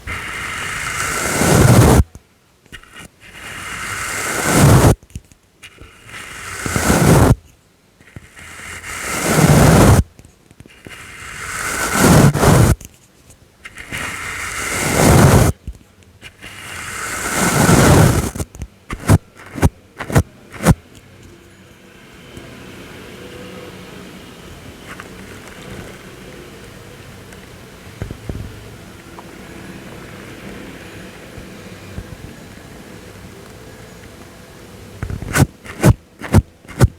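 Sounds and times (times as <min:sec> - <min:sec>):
brush sweeping: 0:00.0 - 0:02.1, 0:02.7 - 0:05.0, 0:05.6 - 0:15.6, 0:16.2 - 0:20.8, 0:35.0 - 0:36.9
quick brush flicks: 0:10.8 - 0:12.8, 0:35.2 - 0:36.9.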